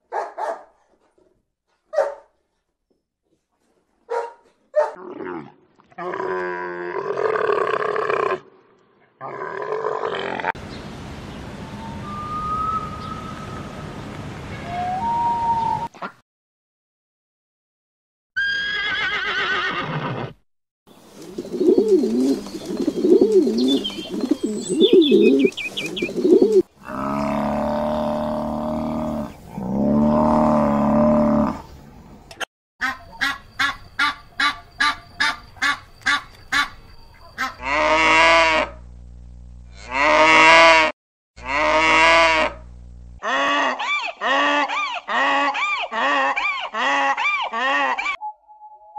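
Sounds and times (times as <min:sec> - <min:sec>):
horse whinnying: 0:18.4 - 0:20.4.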